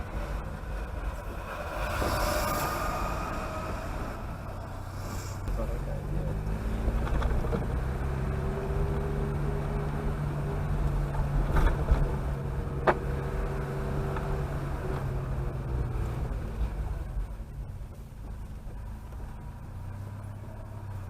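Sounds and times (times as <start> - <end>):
car engine humming: 0.0 - 21.0.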